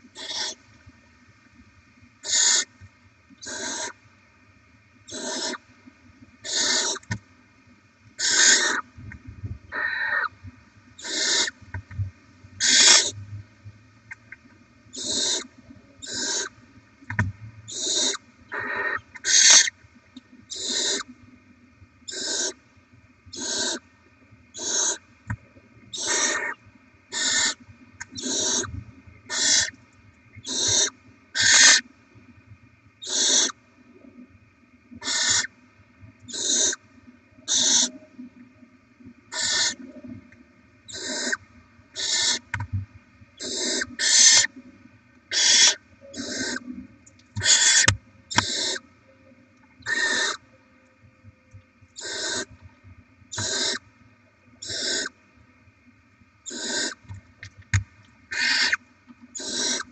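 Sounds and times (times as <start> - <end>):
faint electrical hum: 0.0 - 59.9
owlets hissing begging calls: 0.2 - 0.6, 2.2 - 2.7, 3.4 - 4.0, 5.1 - 5.6, 6.4 - 7.0, 8.2 - 8.8, 9.7 - 10.3, 11.0 - 11.6, 12.6 - 13.2, 15.0 - 16.5, 17.7 - 19.7, 20.5 - 21.1, 22.1 - 22.6, 23.4 - 23.8, 24.6 - 25.0, 25.9 - 27.6, 28.2 - 28.7, 29.3 - 29.7, 30.4 - 31.8, 33.0 - 33.6, 35.0 - 35.5, 36.3 - 36.8, 37.5 - 38.0, 39.3 - 39.8, 40.9 - 41.4, 42.0 - 42.4, 43.4 - 44.5, 45.3 - 46.7, 47.4 - 48.8, 49.8 - 50.4, 52.0 - 52.5, 53.3 - 53.8, 54.6 - 55.1, 56.5 - 57.0, 58.3 - 58.8, 59.4 - 59.9.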